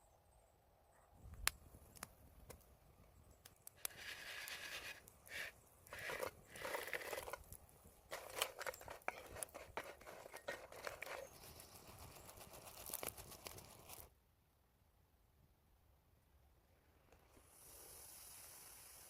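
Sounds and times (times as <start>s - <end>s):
crisp crunching and crackling: 3.8s - 14.1s.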